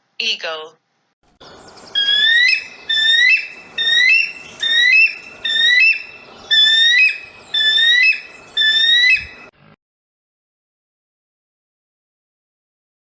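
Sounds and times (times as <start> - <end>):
eagle whistled calls: 1.5 - 9.5.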